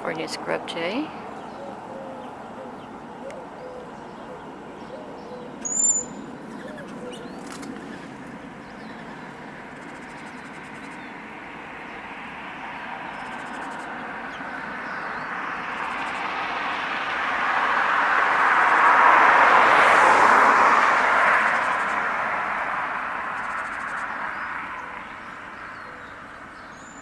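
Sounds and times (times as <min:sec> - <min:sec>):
traffic rush: 0:00.0 - 0:27.0
bird cooing: 0:01.4 - 0:08.2
sharp high bird chirp: 0:05.6 - 0:07.4.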